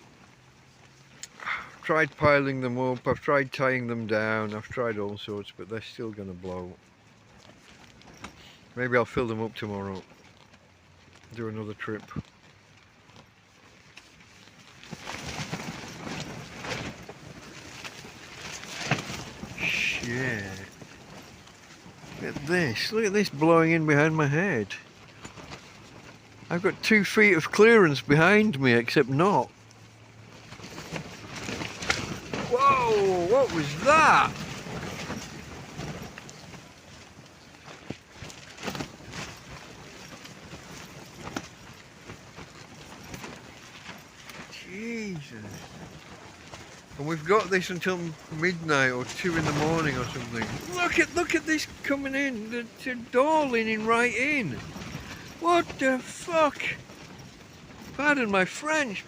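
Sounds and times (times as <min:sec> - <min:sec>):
tent fabric flapping: 0:00.0 - 0:59.0
wind gusting: 0:32.2 - 0:35.5.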